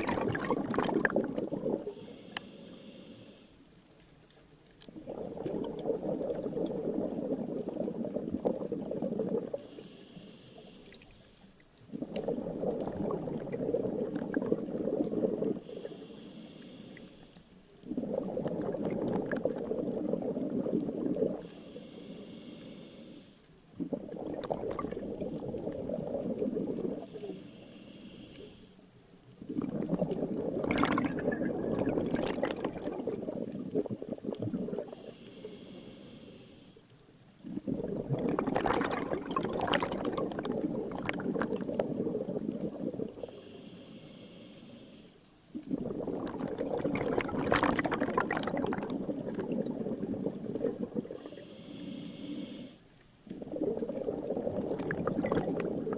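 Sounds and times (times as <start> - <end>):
bubbling exhaled air: 0.0 - 3.4, 4.9 - 17.2, 17.8 - 28.6, 29.4 - 36.6, 37.4 - 44.9, 45.5 - 55.9
regulator inhalation hiss: 2.0 - 3.6, 9.6 - 11.6, 15.6 - 17.5, 21.4 - 23.5, 27.0 - 28.8, 34.9 - 36.9, 43.2 - 45.2, 51.2 - 52.9.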